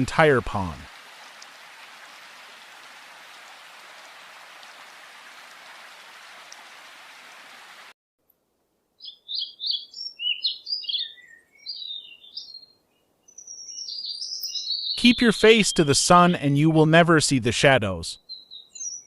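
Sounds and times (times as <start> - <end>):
hiss of rain or running water: 0.0 - 8.0
bird chirping: 9.0 - 16.6, 18.2 - 19.0.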